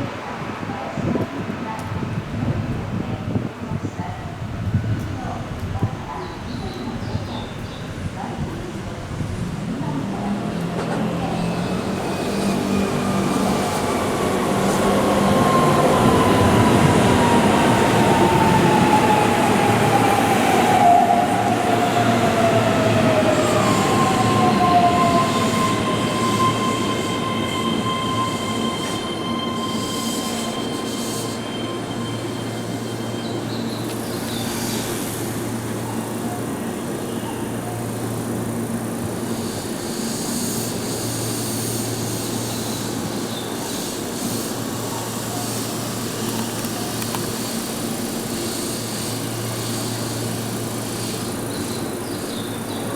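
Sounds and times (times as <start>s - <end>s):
train wheel and rail rumble: 0.0s - 52.9s
electric train whine: 7.8s - 52.9s
high-pitched wheel squeal: 23.7s - 35.1s.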